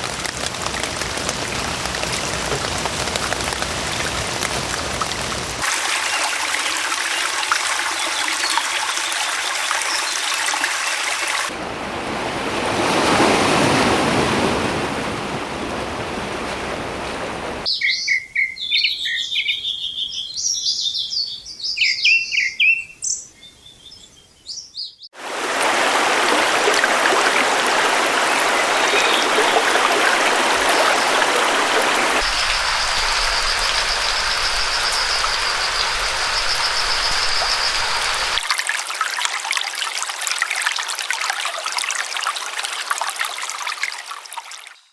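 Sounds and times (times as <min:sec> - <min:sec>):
small birds chirping: 0:17.7 - 0:25.1, 0:32.2 - 0:38.4
steady rushing hiss: 0:31.6 - 0:38.4.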